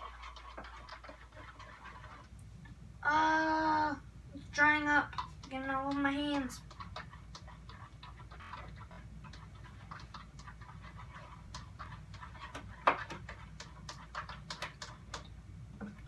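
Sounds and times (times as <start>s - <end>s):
small irregular clicks: 5.1s - 16.0s.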